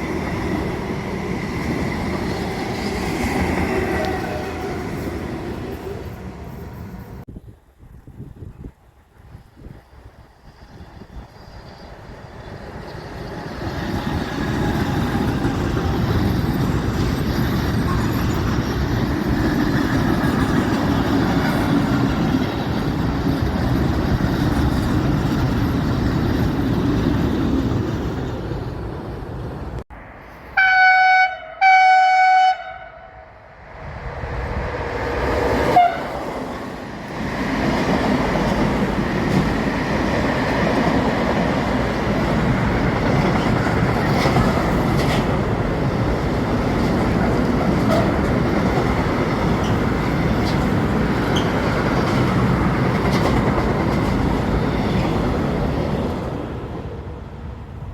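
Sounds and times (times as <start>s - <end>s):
freight train rumbling past: 0.0s - 57.9s
locomotive horn blasts: 30.6s - 33.3s, 35.7s - 36.2s.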